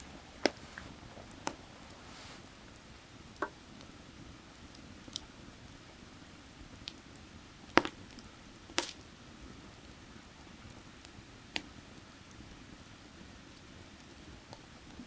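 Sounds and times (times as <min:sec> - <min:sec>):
creek water rushing: 0:00.0 - 0:03.1
firewood crackling and popping: 0:00.0 - 0:15.0.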